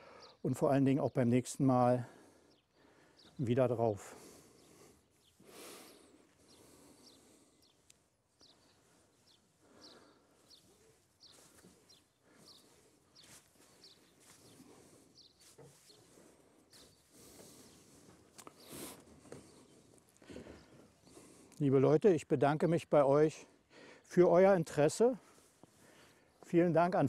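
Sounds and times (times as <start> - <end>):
small bird chirping: 4.6 - 19.9
soft rustles: 10.4 - 20.2.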